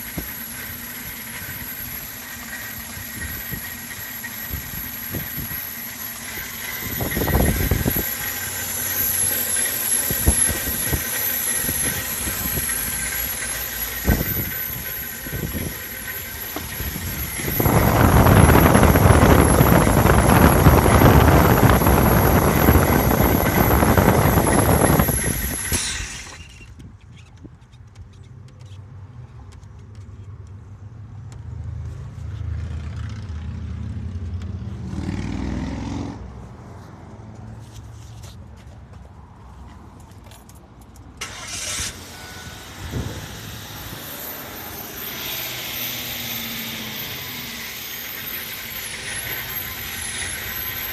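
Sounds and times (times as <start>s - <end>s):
car engine rough idle: 0.0s - 26.6s, 46.7s - 50.9s
thin high whine: 0.0s - 26.8s.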